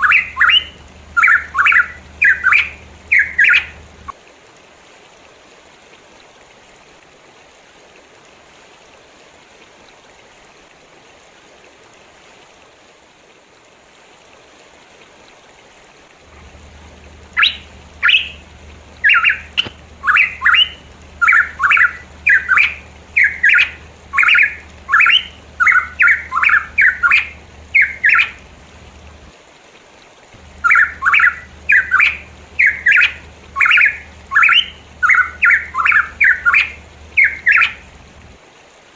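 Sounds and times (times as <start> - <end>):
bird calling harsh notes: 0.0 - 4.1, 16.3 - 28.8, 30.4 - 38.2
background hiss: 0.0 - 38.9.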